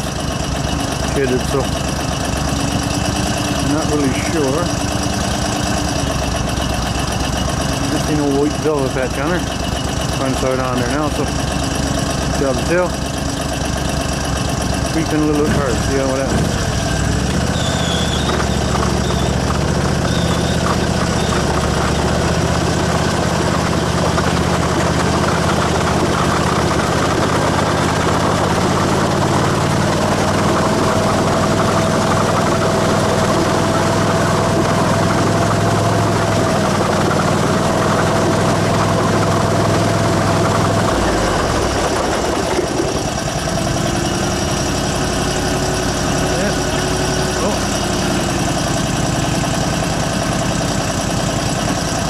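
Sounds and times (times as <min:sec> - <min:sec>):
vehicle engine idling: 0:00.0 - 0:52.0.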